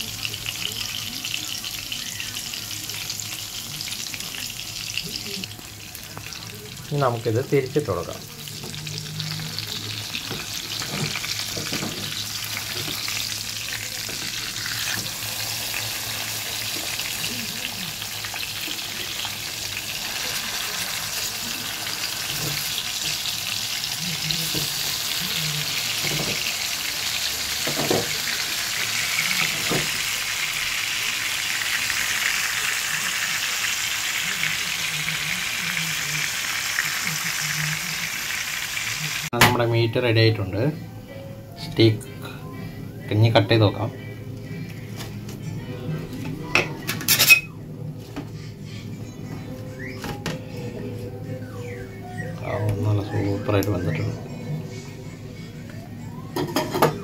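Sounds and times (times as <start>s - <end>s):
fish frying in oil: 0.0s - 39.4s.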